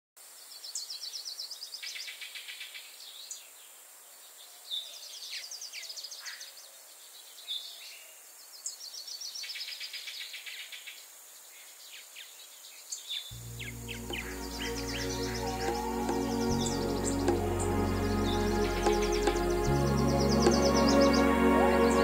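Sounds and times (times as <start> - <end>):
bird chirps: 12.9 - 22.0
bird singing trills: 13.6 - 22.0.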